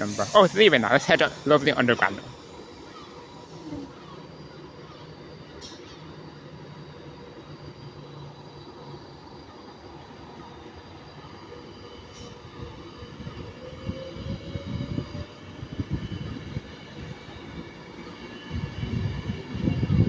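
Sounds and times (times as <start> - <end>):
train wheels rumbling: 0.0 - 6.8
electric train motor whine: 0.0 - 20.0.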